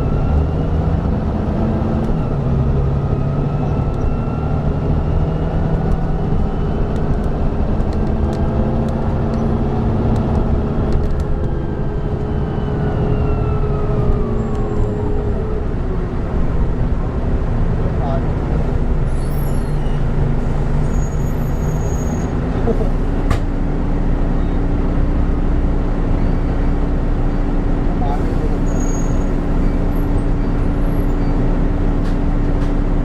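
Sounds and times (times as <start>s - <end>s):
bus diesel engine drone: 0.0s - 33.0s.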